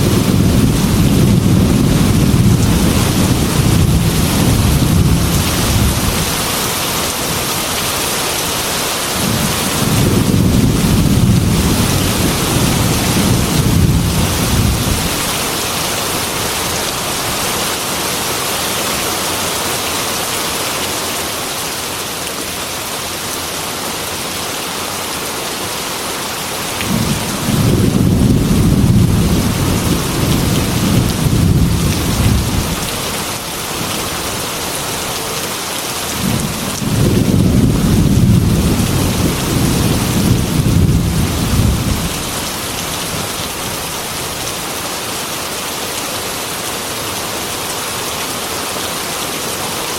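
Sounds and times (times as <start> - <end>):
thunder rolling: 0.0 - 6.4, 9.2 - 15.4, 26.8 - 33.0, 36.2 - 43.4
heavy rain on a window: 0.0 - 49.9.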